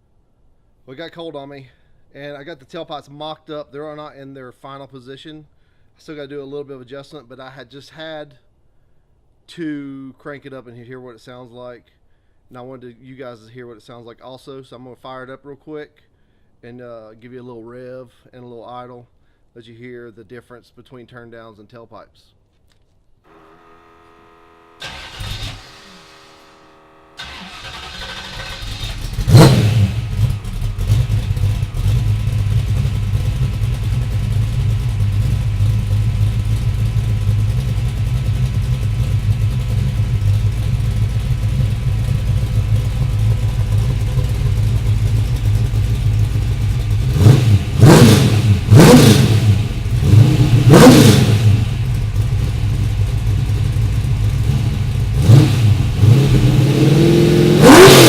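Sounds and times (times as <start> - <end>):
car engine starting and idling: 23.3 - 58.0
engine revving: 23.3 - 58.0.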